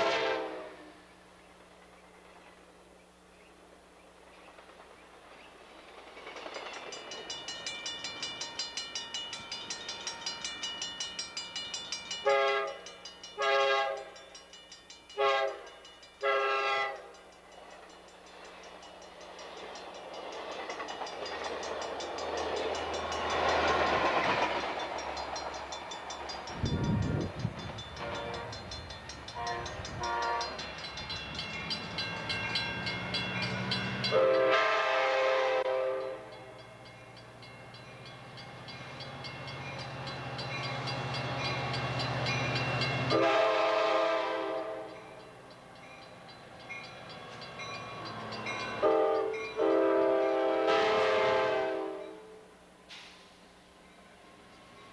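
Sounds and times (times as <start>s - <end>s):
train air horn: 0.0s - 1.2s, 12.2s - 14.2s, 15.2s - 17.1s, 28.0s - 28.6s, 29.4s - 30.6s, 34.0s - 36.4s, 43.1s - 45.0s, 48.8s - 53.4s
train rumbling past: 0.0s - 54.9s.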